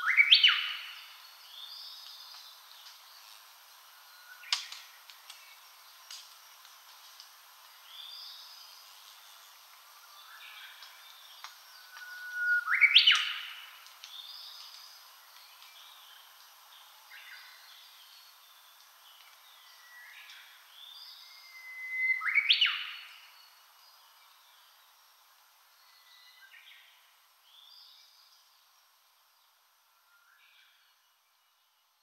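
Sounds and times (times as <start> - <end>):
songbird singing: 0.0 - 32.0.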